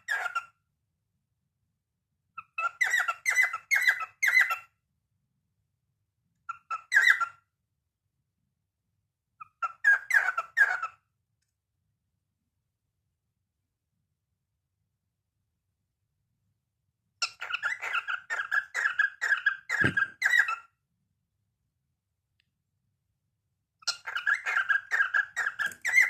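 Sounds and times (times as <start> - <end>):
cockatiel chirping and whistling: 0.0 - 0.5, 2.4 - 4.7, 6.4 - 7.4, 9.4 - 11.0, 17.2 - 20.7, 23.8 - 26.0.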